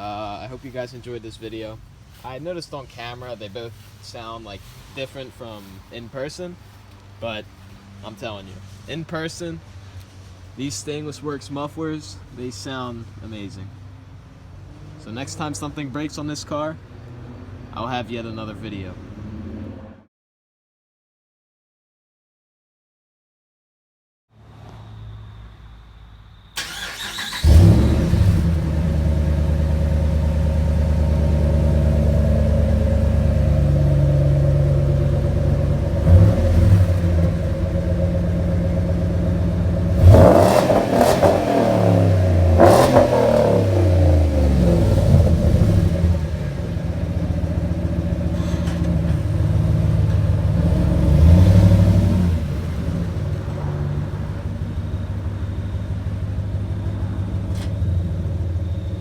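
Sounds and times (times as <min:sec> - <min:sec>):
engine starting: 0:26.6 - 0:28.8
engine revving: 0:26.6 - 0:55.2
engine exhaust burble idling: 0:27.4 - 0:59.0.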